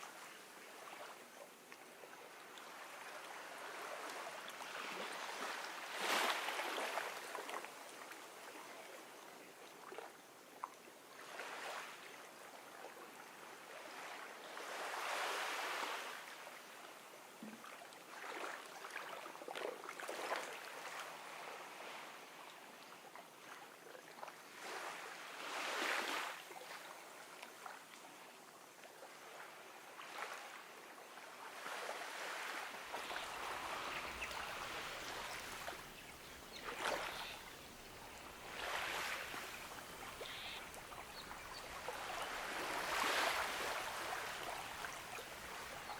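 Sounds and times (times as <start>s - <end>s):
gentle waves washing on beach: 0.0s - 10.3s, 11.0s - 45.9s
small water splashes: 17.4s - 21.0s, 32.3s - 45.9s.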